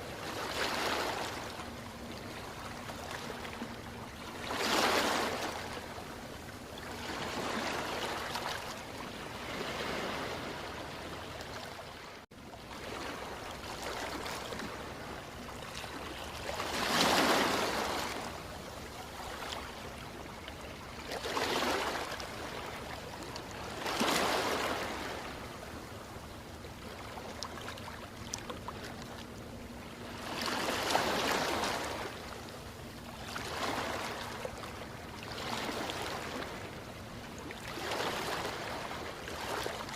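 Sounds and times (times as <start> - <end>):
ocean waves washing ashore: 0.0 - 39.9.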